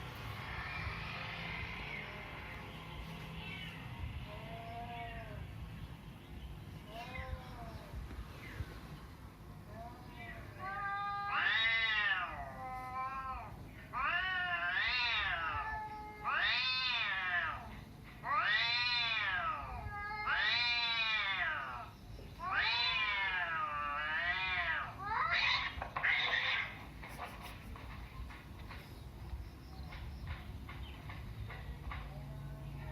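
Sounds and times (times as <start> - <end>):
cat meowing: 4.3 - 5.5, 6.8 - 8.0, 9.7 - 26.9.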